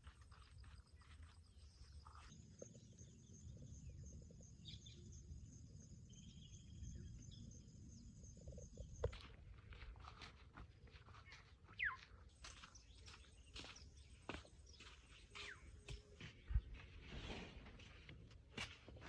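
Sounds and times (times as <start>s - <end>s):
bird call: 11.8s - 12.1s.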